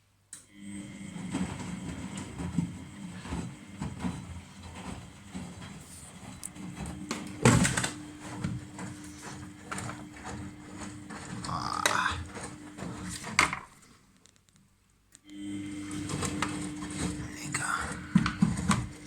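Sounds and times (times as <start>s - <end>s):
washing machine running: 0.4s - 13.9s, 15.3s - 19.0s
clunks and knocks: 1.5s - 13.7s.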